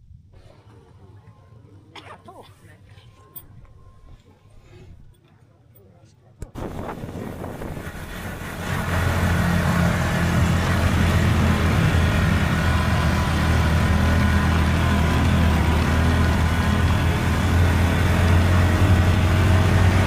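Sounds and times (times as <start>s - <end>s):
motorbike engine humming: 6.5s - 20.0s.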